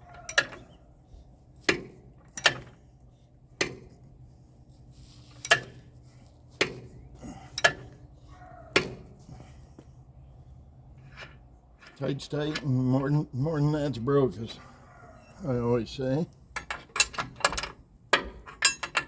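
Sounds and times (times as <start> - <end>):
tools clinking on metal: 0.0 - 0.8, 5.4 - 5.8, 6.6 - 8.0, 16.6 - 19.0.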